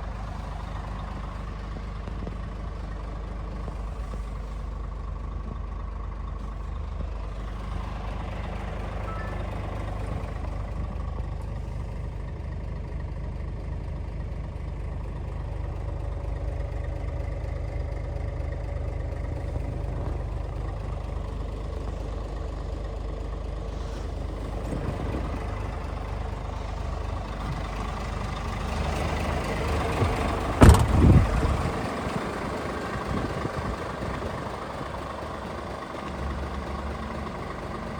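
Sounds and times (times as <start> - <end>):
truck diesel engine running: 0.0 - 37.9
low rumble: 29.9 - 35.1
sharp loud knock: 30.6 - 31.1.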